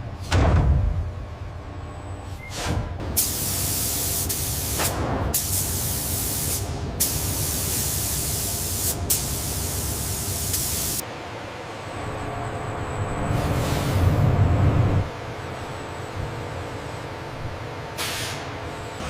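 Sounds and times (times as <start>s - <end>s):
low machinery hum: 0.0s - 3.5s, 4.8s - 19.0s
spray hissing: 5.4s - 11.0s.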